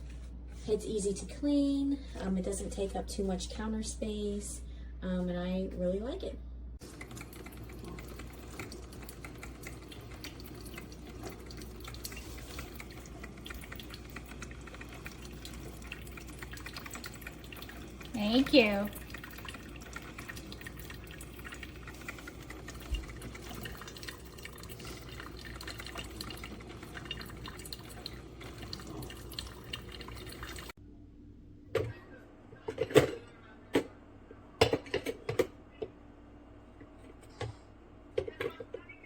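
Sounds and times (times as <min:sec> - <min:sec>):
faint steady hum: 0:00.0 - 0:39.0
coffee maker brewing: 0:06.8 - 0:30.8.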